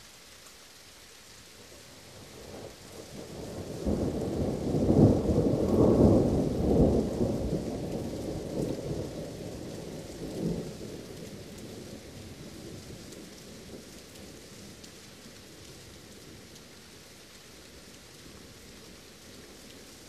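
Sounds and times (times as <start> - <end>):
steady rain: 0.0 - 20.0
deep roll of thunder: 3.4 - 11.0.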